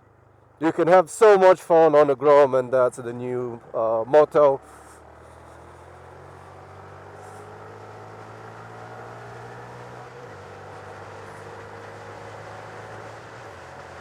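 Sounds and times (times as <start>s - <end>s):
road and wind noise: 0.0s - 14.0s
motorcycle engine running: 3.5s - 14.0s.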